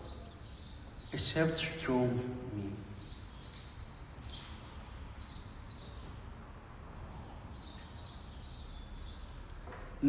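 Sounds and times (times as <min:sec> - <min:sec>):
faint high bird chirps: 0:00.0 - 0:01.3.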